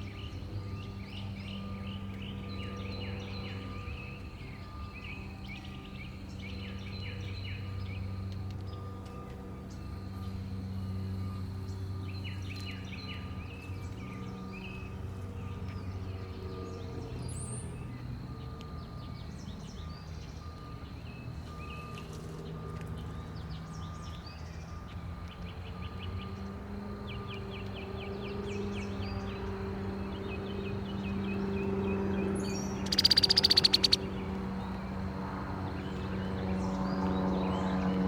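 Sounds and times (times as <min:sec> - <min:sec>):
small birds chirping: 0:00.0 - 0:38.0
steady low hum: 0:00.0 - 0:38.0
bird trills: 0:30.1 - 0:34.7.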